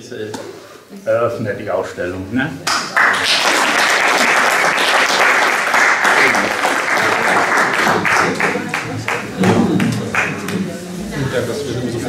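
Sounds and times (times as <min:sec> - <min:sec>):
audience applauding: 0:02.7 - 0:10.7
voices: 0:05.9 - 0:12.0.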